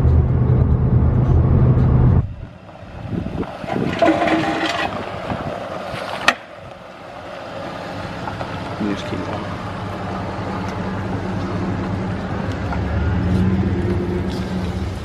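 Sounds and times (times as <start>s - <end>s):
irregular outdoor sounds: 0.0s - 15.0s
pickup truck rumbling: 0.0s - 15.0s.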